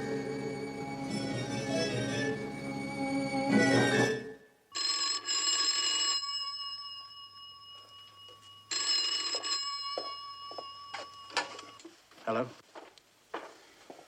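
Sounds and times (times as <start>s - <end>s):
telephone bell ringing: 4.7s - 11.9s.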